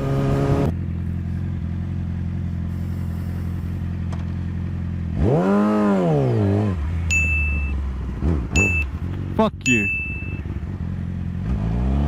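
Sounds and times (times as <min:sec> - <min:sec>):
motorcycle engine idling: 0:00.7 - 0:05.2, 0:06.8 - 0:11.4.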